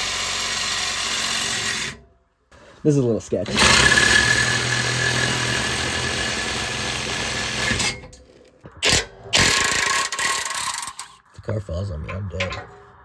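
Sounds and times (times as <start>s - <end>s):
reciprocating saw cutting pipe: 0.0s - 2.0s, 3.4s - 8.1s, 8.8s - 11.2s.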